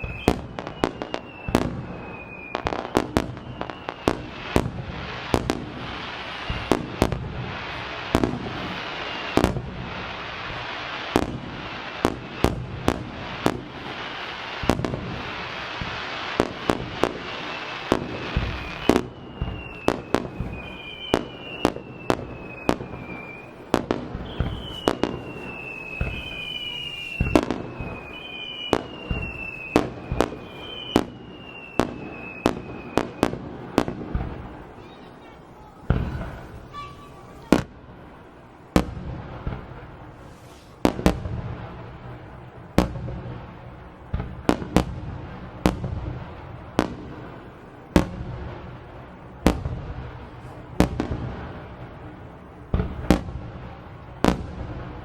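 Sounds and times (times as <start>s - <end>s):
falling firework whistles: 0.0s - 38.1s, 38.8s - 41.8s
firework crackling hiss: 0.0s - 55.0s.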